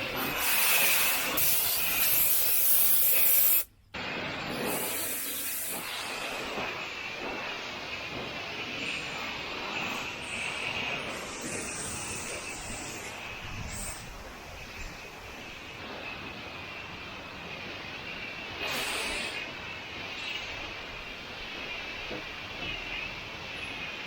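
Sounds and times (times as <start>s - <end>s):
pressure washer spraying: 0.0s - 3.7s, 4.5s - 6.8s, 18.6s - 19.4s.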